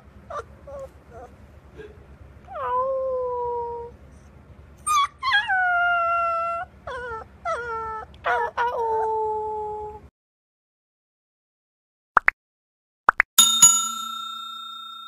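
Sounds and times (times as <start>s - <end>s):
puppy howling: 2.5s - 3.9s, 4.8s - 10.0s.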